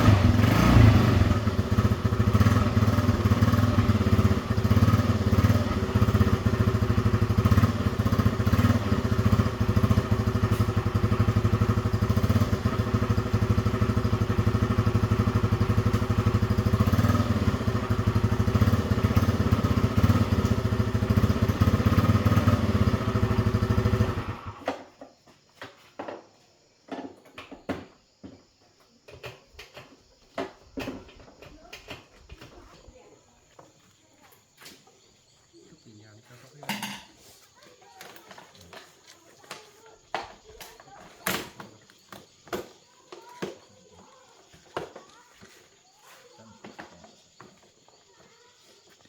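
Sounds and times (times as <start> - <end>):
scooter engine running: 0.0 - 24.9.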